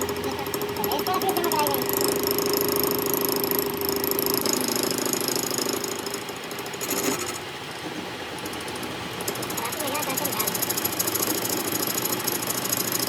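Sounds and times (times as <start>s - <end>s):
workshop machinery rattling and humming: 0.0s - 13.0s.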